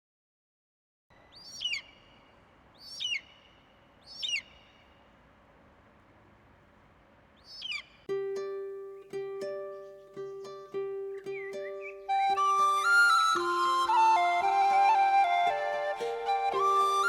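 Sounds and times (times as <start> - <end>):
bird whistled calls: 1.2 - 5.0, 7.4 - 8.1, 11.2 - 17.0
plucked-string music: 8.1 - 17.0.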